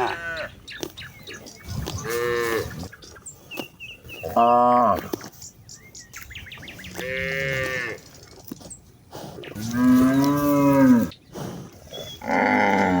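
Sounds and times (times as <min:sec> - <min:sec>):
cattle mooing: 0:06.9 - 0:08.0, 0:09.6 - 0:11.2, 0:12.1 - 0:13.0.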